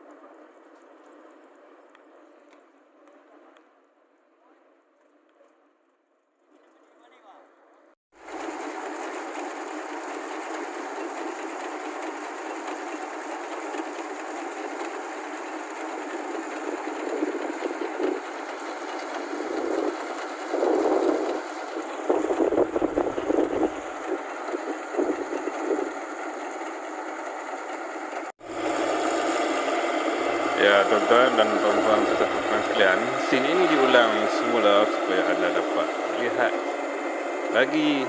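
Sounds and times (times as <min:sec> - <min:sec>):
combine harvester running: 0:08.2 - 0:38.0.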